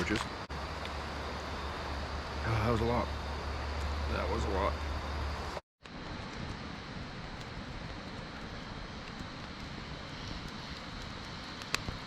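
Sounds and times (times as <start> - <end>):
even hiss: 0.0 - 5.6
faint ticks: 7.3 - 12.0.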